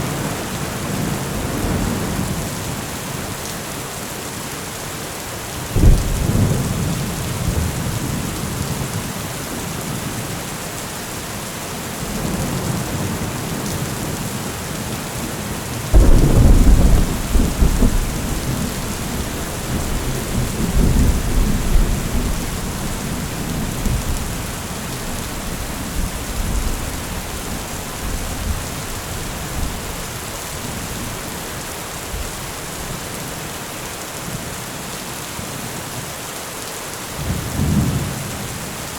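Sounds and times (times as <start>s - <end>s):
steady rain falling: 0.0s - 38.9s
rolling thunder: 5.8s - 8.5s, 16.0s - 31.1s.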